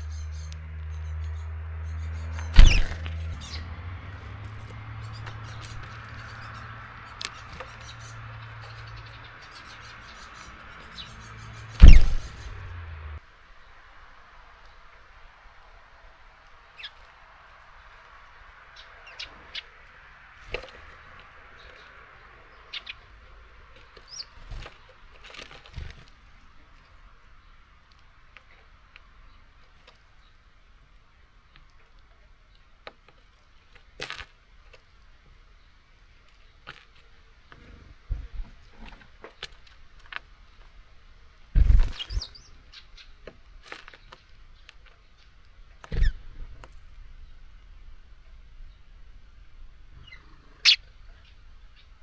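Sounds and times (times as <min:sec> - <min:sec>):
high bird chirps: 0:00.0 - 0:04.3, 0:05.0 - 0:12.9
birds knocking and fluttering: 0:00.0 - 0:13.0, 0:20.4 - 0:26.9, 0:36.3 - 0:40.8, 0:41.6 - 0:47.0
thump with wing flutter: 0:02.4 - 0:06.5, 0:11.7 - 0:12.7, 0:38.1 - 0:39.1, 0:41.6 - 0:42.4, 0:45.8 - 0:46.7.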